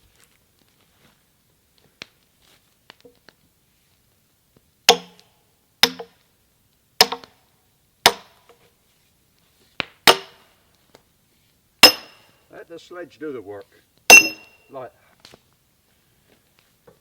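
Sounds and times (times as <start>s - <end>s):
sledgehammer striking steel wedge: 4.9s - 5.2s, 5.8s - 6.2s, 7.0s - 7.3s, 8.1s - 8.4s, 10.0s - 10.4s, 11.8s - 12.3s, 14.1s - 14.6s.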